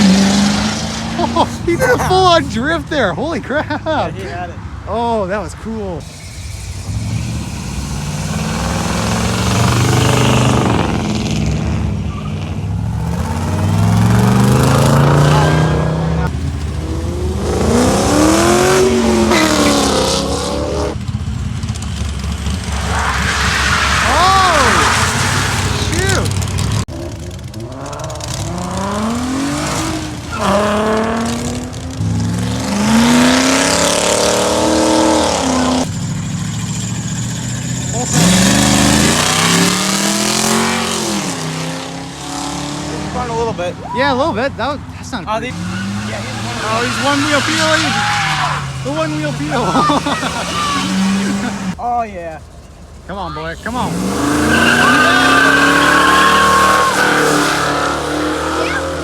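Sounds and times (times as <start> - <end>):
car engine accelerating: 0.0 - 4.0, 4.7 - 59.0.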